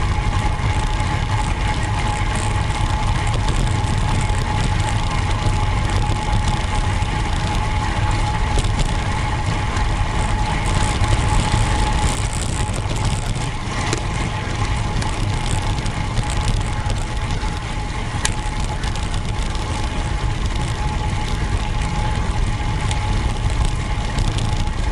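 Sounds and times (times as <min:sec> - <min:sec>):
steady thin whine: 0:00.0 - 0:24.9
tyre noise on tarmac: 0:00.0 - 0:24.9
wind rushing over microphone: 0:00.0 - 0:24.9.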